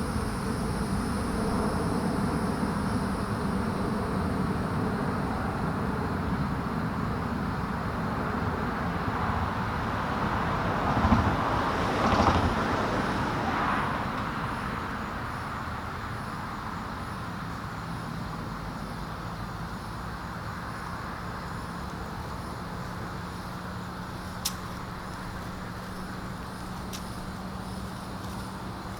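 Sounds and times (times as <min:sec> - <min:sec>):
steady background hum: 0:00.0 - 0:09.0, 0:16.2 - 0:28.9
vehicle passing: 0:23.0 - 0:28.9.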